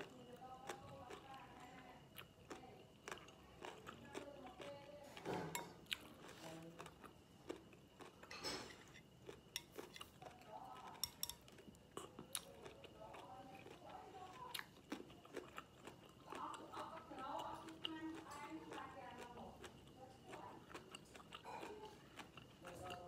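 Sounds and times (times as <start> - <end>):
close-up chewing: 0.0 - 23.0
chopsticks clicking on plate: 10.9 - 11.7.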